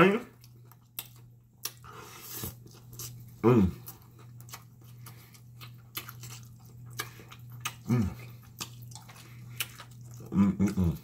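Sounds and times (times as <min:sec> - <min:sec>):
wet chewing and lip-smacking: 0:00.3 - 0:11.0
man humming: 0:03.4 - 0:03.9, 0:07.8 - 0:08.3, 0:10.2 - 0:11.0.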